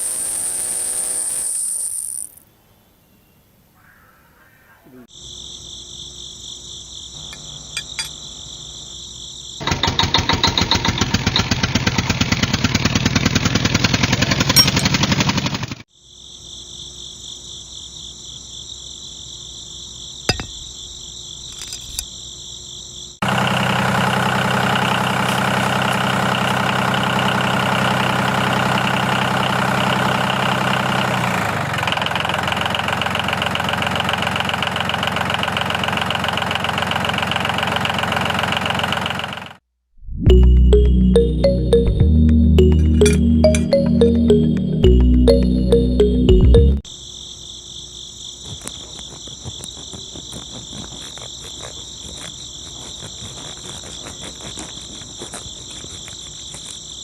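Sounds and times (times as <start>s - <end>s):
small electric motor whining: 0.0s - 2.3s
loud rasping: 49.6s - 56.8s.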